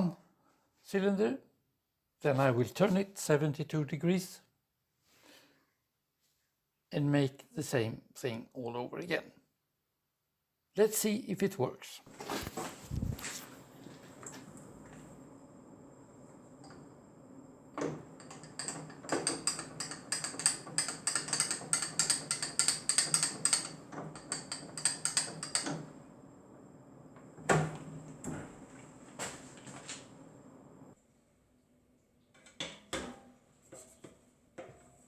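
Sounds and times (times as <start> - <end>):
machine hum: 12.9 - 31.0.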